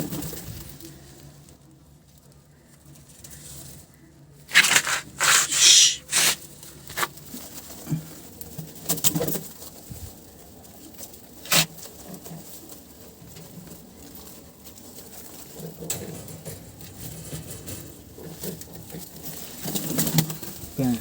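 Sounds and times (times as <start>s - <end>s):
crinkling crushing noises: 4.5s - 7.1s.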